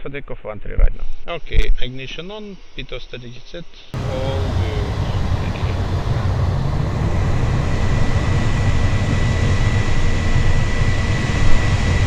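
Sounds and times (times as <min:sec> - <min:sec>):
jet engines rumbling with whine: 0:04.0 - 0:12.0.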